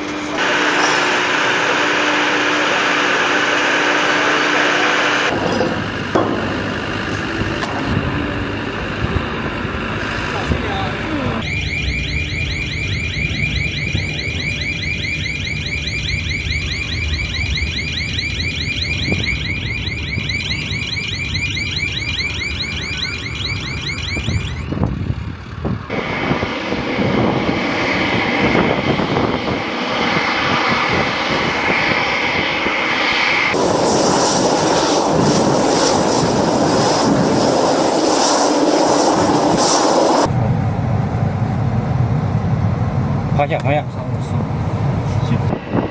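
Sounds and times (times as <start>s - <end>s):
high warbling engine whine: 0.0s - 45.9s
jet engine roar: 0.0s - 45.9s
steady high whistle: 11.4s - 24.8s, 33.6s - 40.3s.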